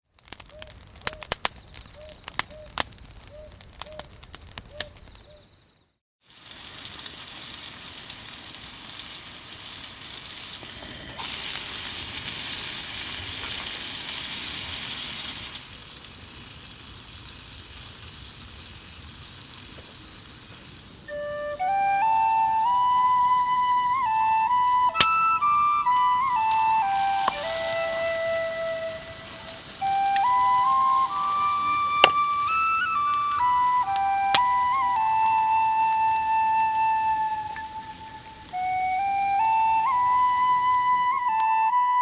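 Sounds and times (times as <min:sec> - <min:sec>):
sharp pops and crackles: 0:00.0 - 0:05.5, 0:24.4 - 0:41.6
food sizzling: 0:06.2 - 0:41.7.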